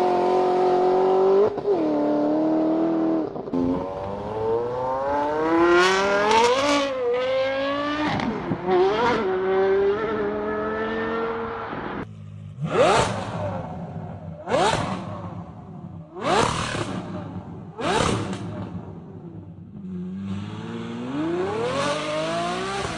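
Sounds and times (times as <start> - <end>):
supercar engine revving: 0.0 - 22.9.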